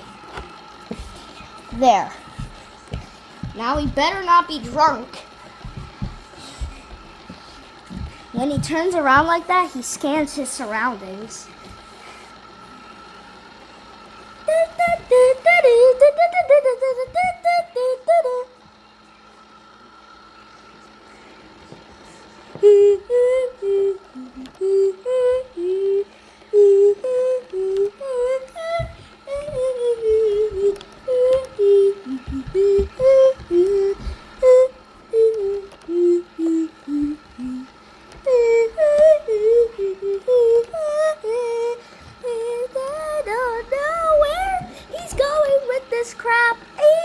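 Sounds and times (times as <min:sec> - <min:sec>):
robot vacuum motor whine: 0:00.0 - 0:47.0
child humming: 0:22.6 - 0:46.2.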